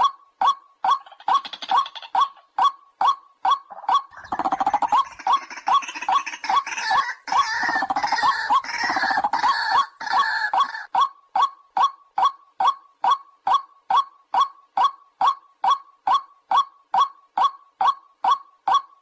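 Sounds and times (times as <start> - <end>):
harsh croaking bird calls: 0.8 - 11.1.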